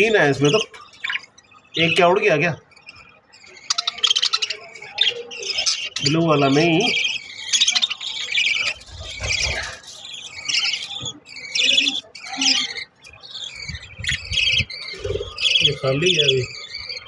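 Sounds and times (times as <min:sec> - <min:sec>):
budgerigars chirping: 0:00.0 - 0:17.0
microphone handling rumbles: 0:13.6 - 0:15.4.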